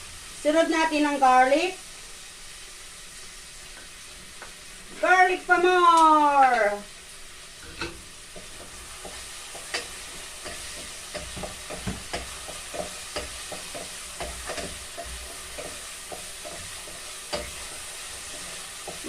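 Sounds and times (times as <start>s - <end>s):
onion sizzling in hot oil: 0.0s - 19.0s
utensil scraping a pot: 7.6s - 19.0s.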